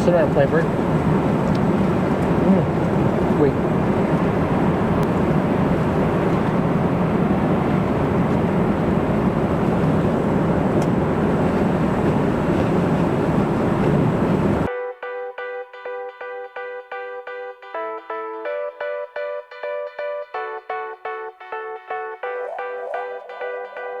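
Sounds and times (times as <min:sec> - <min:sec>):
jet engines and airflow rumble: 0:00.0 - 0:14.7, 0:21.9 - 0:24.0.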